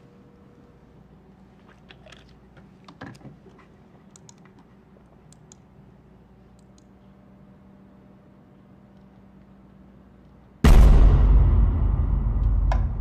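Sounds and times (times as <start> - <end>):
faint steady hum: 0.0 - 13.0
keyboard typing clicks: 4.1 - 4.7
loud knock: 10.6 - 13.0.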